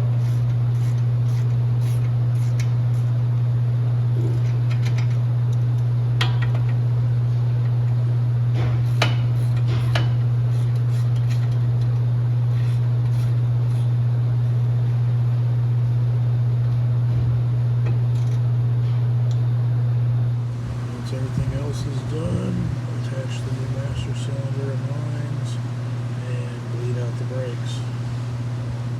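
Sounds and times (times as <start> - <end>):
low mechanical hum: 0.0 - 28.9.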